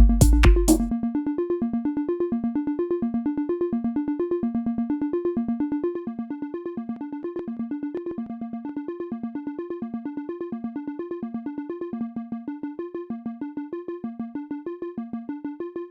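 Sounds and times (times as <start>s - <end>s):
synthesizer plucked sequence: 0.0s - 2.8s.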